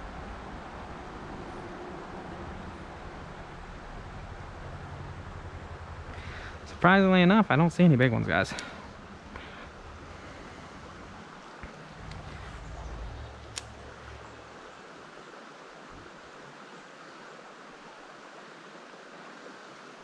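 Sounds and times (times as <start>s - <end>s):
creek water flowing: 0.2s - 20.0s
wind rumble on microphone: 8.8s - 14.8s
sharp click: 13.2s - 14.0s.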